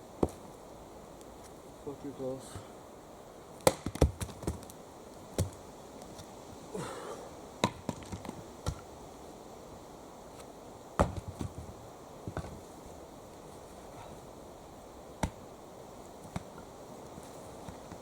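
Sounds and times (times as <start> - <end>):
axe chopping wood: 3.6 - 4.6, 7.6 - 8.8, 11.0 - 11.5, 15.2 - 15.4.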